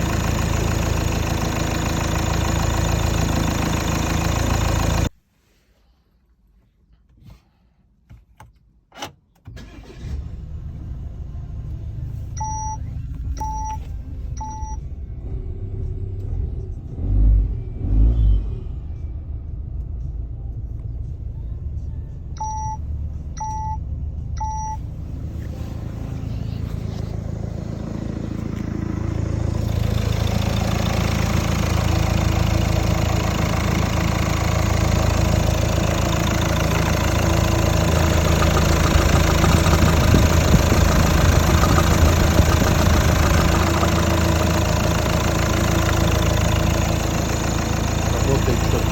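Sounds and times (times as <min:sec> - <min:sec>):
diesel engine starting and idling: 0:00.0 - 0:05.2, 0:09.0 - 0:48.9.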